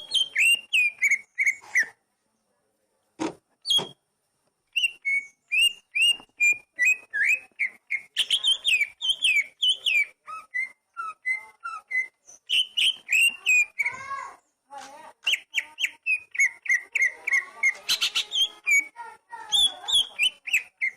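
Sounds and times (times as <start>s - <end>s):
bird singing whistled notes: 0.0s - 2.0s, 4.7s - 14.0s, 15.2s - 20.9s.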